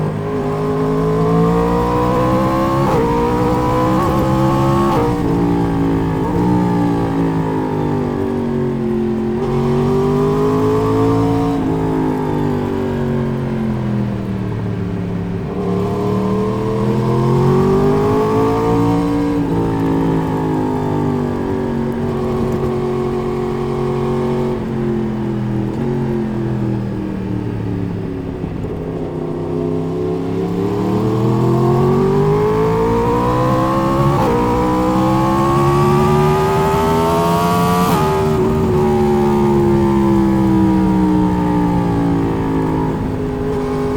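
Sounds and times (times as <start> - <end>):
motorcycle engine accelerating: 0.0 - 43.9.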